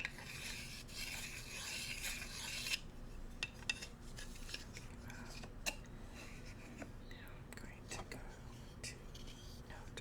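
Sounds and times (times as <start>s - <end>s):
bamboo utensils scraping: 0.0s - 4.8s.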